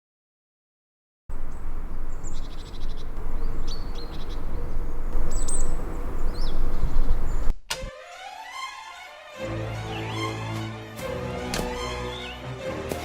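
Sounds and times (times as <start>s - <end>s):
birds chirping and trilling: 1.3s - 7.5s
loud low rumble: 1.3s - 7.5s.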